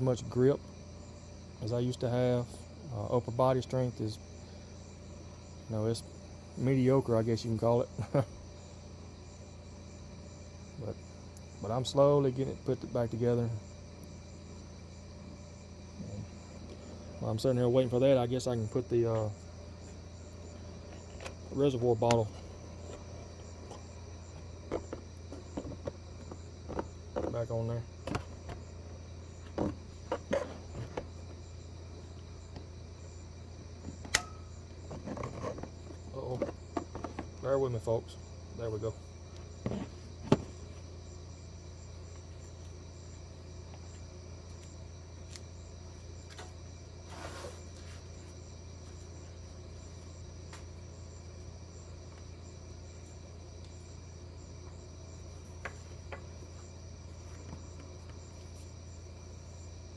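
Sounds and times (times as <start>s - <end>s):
crickets chirping: 0.0s - 59.9s
low steady hum: 0.0s - 59.9s
sharp click: 34.0s - 34.4s.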